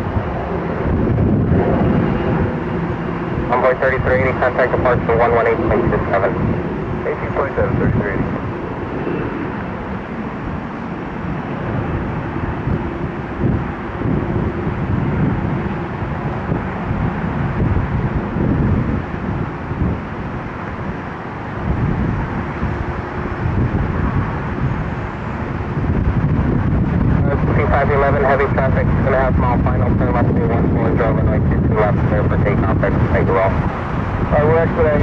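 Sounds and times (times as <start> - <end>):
jet engine rumble: 0.0 - 35.0
wind buffeting microphone: 0.0 - 35.0.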